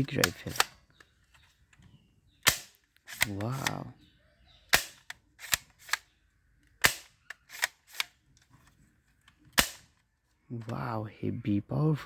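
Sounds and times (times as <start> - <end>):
toy rifle snapping and clicking: 0.0 - 1.2, 2.4 - 4.0, 4.6 - 8.5, 9.2 - 10.1.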